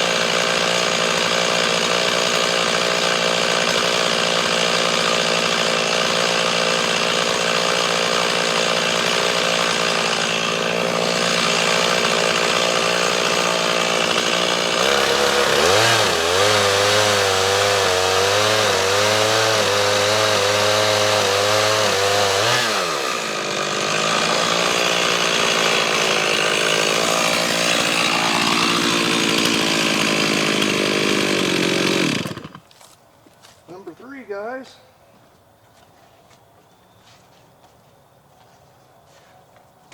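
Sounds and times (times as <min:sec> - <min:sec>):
chainsaw cutting through log: 0:00.0 - 0:32.9.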